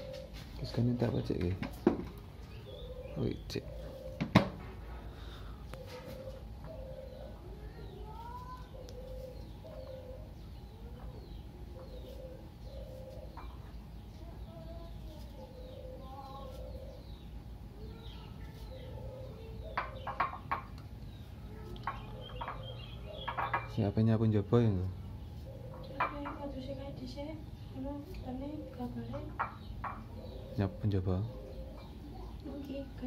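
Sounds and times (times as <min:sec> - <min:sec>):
birds calling low notes: 0:00.0 - 0:33.0
faint higher bird chirps: 0:05.7 - 0:20.4.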